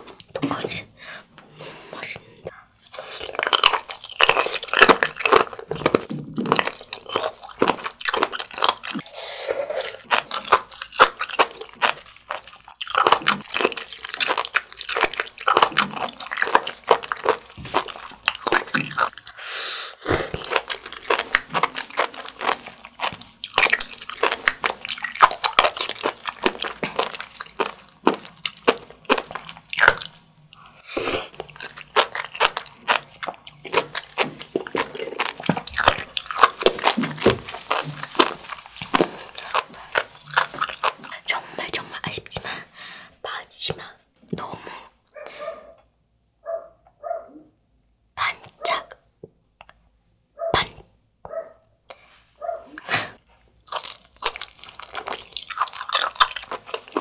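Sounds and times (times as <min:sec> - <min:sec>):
crisp chewing pops and crunches: 0:20.3 - 0:30.7, 0:31.5 - 0:41.3, 0:53.6 - 0:57.0.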